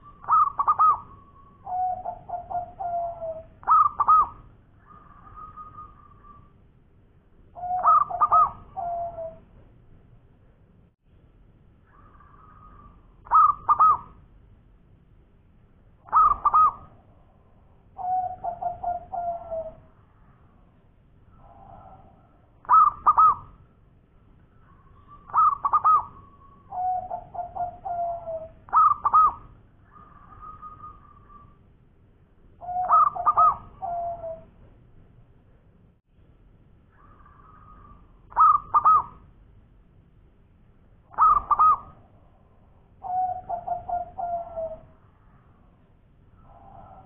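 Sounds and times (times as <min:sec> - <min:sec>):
dove cooing: 0:00.0 - 0:06.5, 0:07.6 - 0:09.5, 0:11.9 - 0:14.2, 0:16.1 - 0:20.0, 0:21.3 - 0:23.6, 0:24.6 - 0:31.6, 0:32.6 - 0:34.6, 0:37.0 - 0:39.2, 0:41.1 - 0:42.4, 0:43.0 - 0:45.1, 0:46.4 - 0:47.0.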